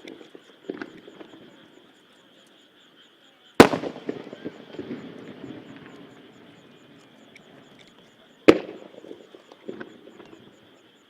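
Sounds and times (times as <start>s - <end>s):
firework boom with echo: 3.6s - 7.6s
firework crackle: 3.6s - 10.6s.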